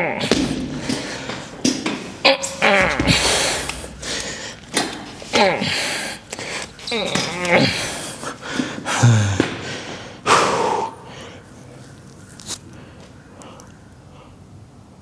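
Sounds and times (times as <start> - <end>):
forceful exhaling breaths: 0.0 - 14.5
man grunting: 8.9 - 9.6.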